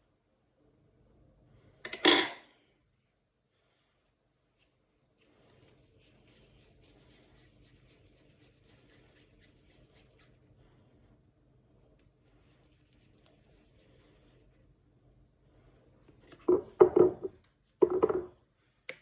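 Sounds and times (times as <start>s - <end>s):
kitchenware clinking: 1.9s - 2.6s.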